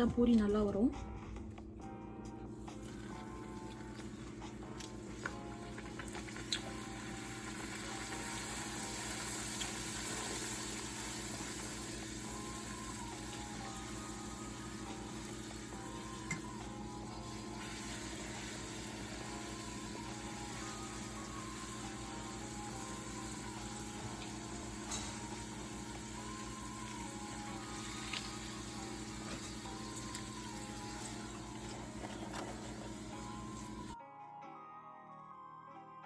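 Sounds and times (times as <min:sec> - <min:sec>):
dough sizzling in hot oil: 0:05.6 - 0:34.0.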